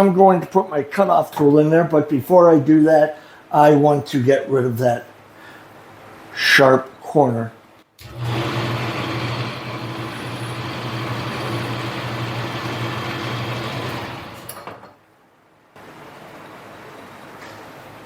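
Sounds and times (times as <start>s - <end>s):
metal lathe running: 8.0s - 14.9s.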